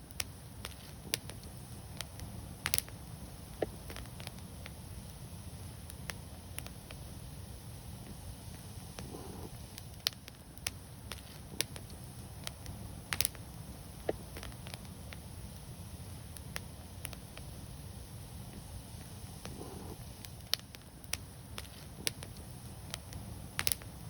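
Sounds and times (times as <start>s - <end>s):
low rumble of flames: 0.0s - 24.0s
wood fire crackling and popping: 0.0s - 24.0s.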